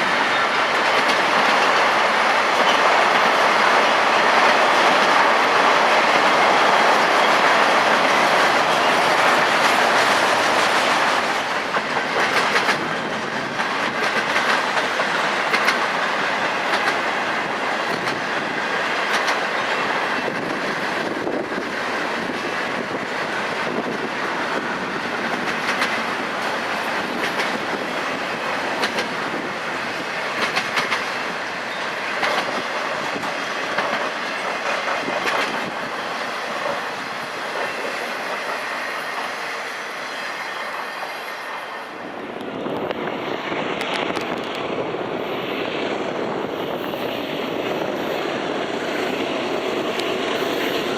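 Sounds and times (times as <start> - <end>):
wheels clicking over rail joints: 0.0 - 39.3
freight train wheels rumbling: 0.0 - 50.9.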